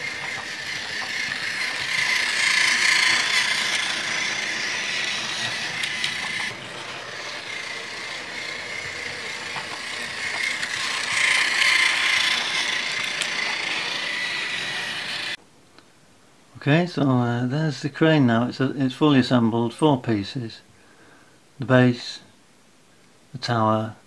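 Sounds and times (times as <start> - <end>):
toy train motor whir: 0.0 - 15.4.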